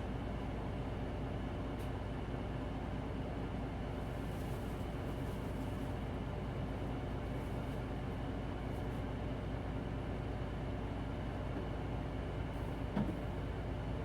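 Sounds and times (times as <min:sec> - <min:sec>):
bus engine and road rumble: 0:00.1 - 0:09.5.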